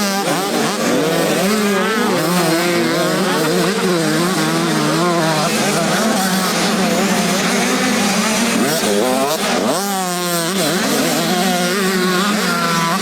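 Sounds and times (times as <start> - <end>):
motocross engines revving: 0.0 - 13.0.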